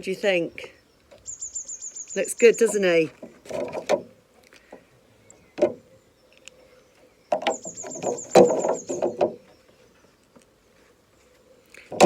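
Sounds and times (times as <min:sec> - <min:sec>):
knocks and rustling from handling: 0:02.6 - 0:04.8, 0:07.3 - 0:09.6.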